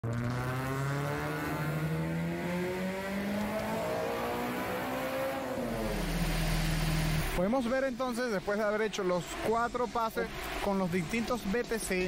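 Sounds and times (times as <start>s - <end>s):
car engine revving under load: 0.0s - 7.4s.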